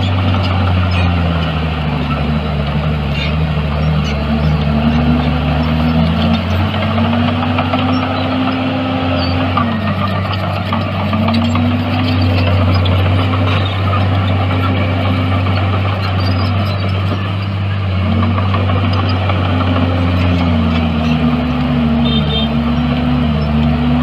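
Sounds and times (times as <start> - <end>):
heavy diesel engines running: 0.0 - 24.0
second engine tone: 19.9 - 24.0.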